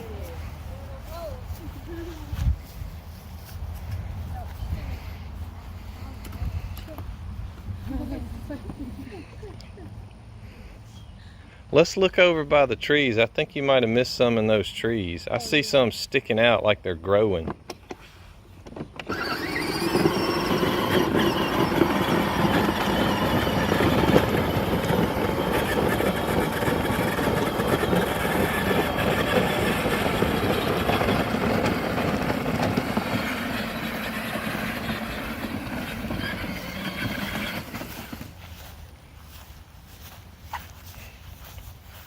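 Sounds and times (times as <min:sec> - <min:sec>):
tyres rolling over ground: 0:18.7 - 0:38.7
electric motor and gearbox whine: 0:19.0 - 0:38.3.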